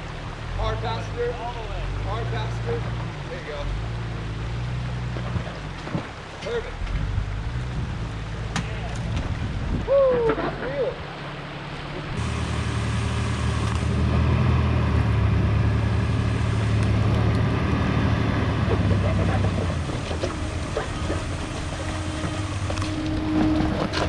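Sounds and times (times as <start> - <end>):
truck engine running under load: 11.1 - 24.0.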